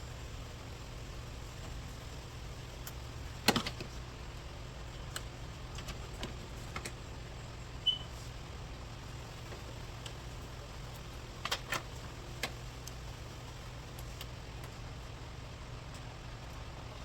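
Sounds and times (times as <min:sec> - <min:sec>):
steady low hum: 0:00.0 - 0:17.0
light clicks of parts: 0:02.8 - 0:07.0, 0:10.9 - 0:13.0, 0:13.9 - 0:14.9
brief high squeak: 0:07.8 - 0:08.1.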